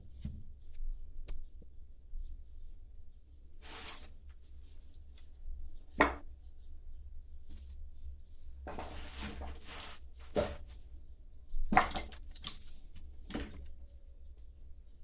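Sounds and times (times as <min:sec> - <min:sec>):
wood scraping on wood: 0:03.6 - 0:04.1, 0:08.7 - 0:10.7.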